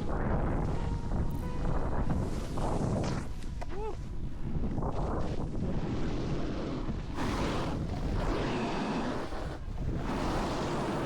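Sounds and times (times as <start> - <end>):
wind on microphone: 0.0 - 11.0
snowboard edges scraping snow: 2.2 - 3.3, 4.9 - 11.0.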